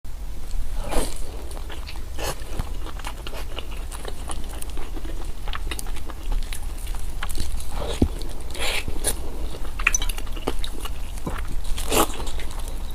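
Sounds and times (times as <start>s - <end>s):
chewing with crackles: 0.4s - 12.9s
crunchy bites: 0.5s - 12.9s.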